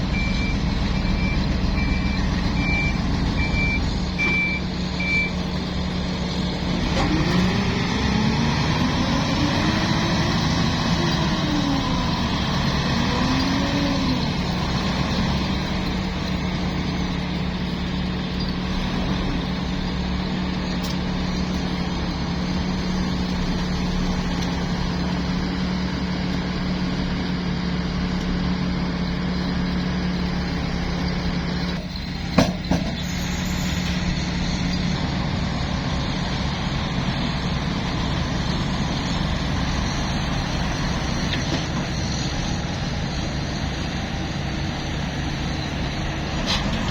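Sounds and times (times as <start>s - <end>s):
diesel truck engine running: 0.0s - 46.9s.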